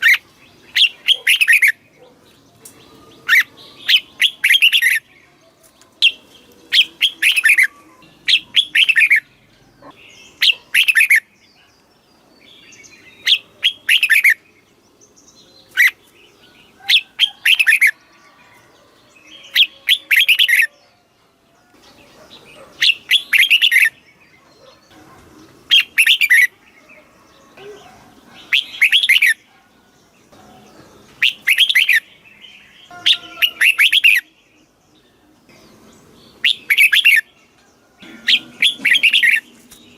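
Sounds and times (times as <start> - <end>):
bird singing bubbly phrases: 6.0 - 11.3, 31.2 - 34.4, 36.4 - 37.3.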